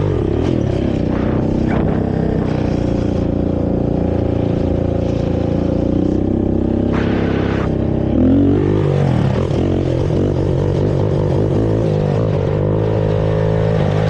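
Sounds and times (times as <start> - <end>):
quad engine revving: 0.0 - 14.0.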